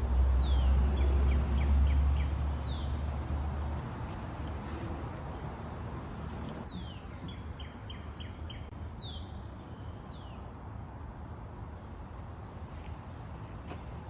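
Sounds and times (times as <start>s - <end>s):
low outdoor rumble: 0.0s - 8.8s
songbird singing: 0.2s - 3.2s, 5.8s - 10.6s.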